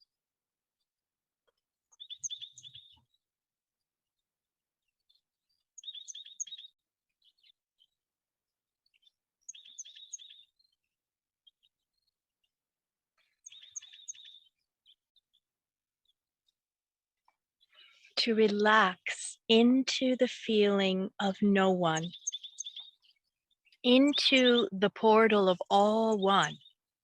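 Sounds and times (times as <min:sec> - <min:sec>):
songbird trilling: 0:02.0 - 0:03.0, 0:05.8 - 0:06.7, 0:09.5 - 0:10.5, 0:13.4 - 0:14.5, 0:22.0 - 0:24.8.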